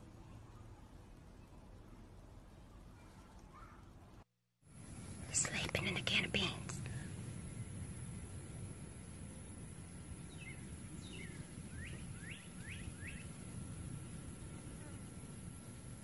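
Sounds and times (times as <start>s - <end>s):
low outdoor rumble: 3.8s - 16.0s
bird chirping: 9.9s - 13.4s.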